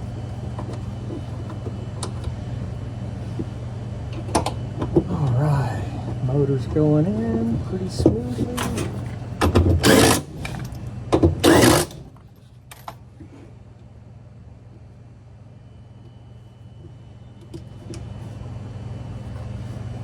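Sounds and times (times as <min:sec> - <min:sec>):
steady low hum: 0:00.0 - 0:20.0
power screwdriver whirring: 0:09.8 - 0:10.4, 0:11.4 - 0:12.0.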